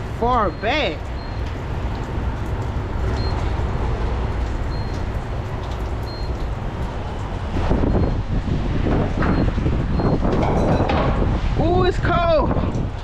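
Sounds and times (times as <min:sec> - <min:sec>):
diesel trucks rumbling: 0:00.0 - 0:13.0
faint high beeps: 0:06.1 - 0:06.3.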